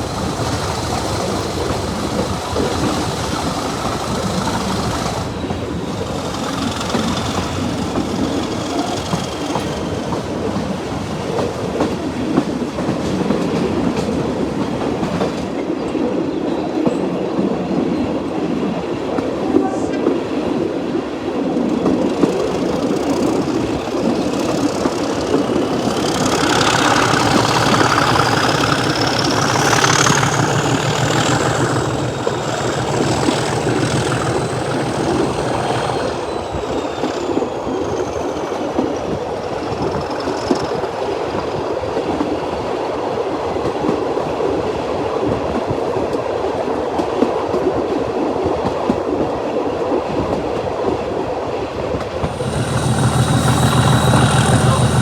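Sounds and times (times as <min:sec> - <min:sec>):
high wheel squeal: 0:00.0 - 0:10.6, 0:21.9 - 0:41.6, 0:52.2 - 0:55.0
train wheels rumbling on rail: 0:00.0 - 0:55.0.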